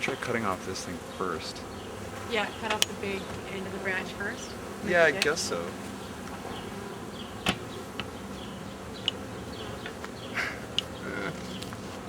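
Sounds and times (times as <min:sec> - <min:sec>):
bee swarm buzzing: 0:00.0 - 0:12.0
sharp clicks: 0:09.0 - 0:09.2.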